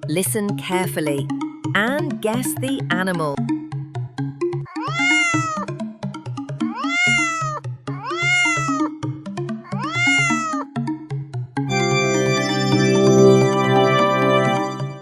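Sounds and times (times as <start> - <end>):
background music: 0.0 - 15.0
cat meowing: 4.7 - 5.7, 6.6 - 8.9, 9.6 - 10.7.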